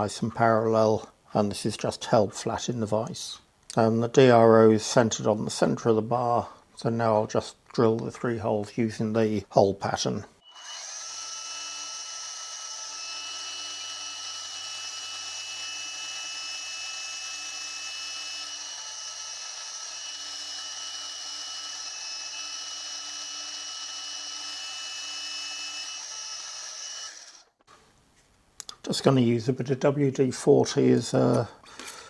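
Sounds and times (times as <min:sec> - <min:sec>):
spindle motor hum and whine: 0:10.4 - 0:27.5.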